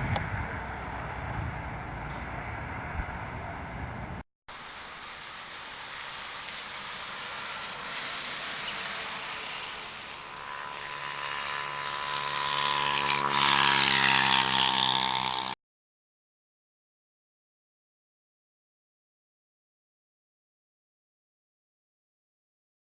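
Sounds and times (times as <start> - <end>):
bus engine drone: 0.0 - 15.6
road noise: 0.0 - 15.6.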